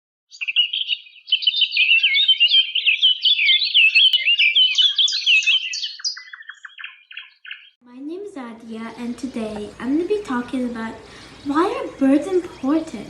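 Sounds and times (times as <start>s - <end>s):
small bird chirping and warbling: 0.3s - 7.8s.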